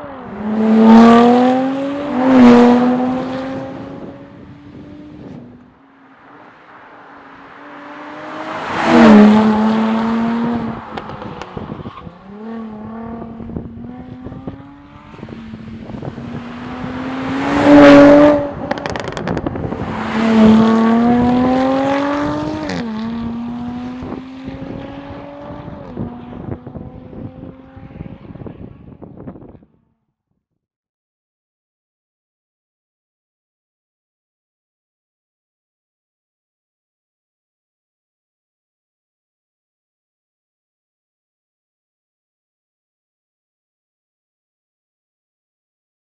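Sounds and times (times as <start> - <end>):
car engine accelerating hard: 0.0 - 29.3.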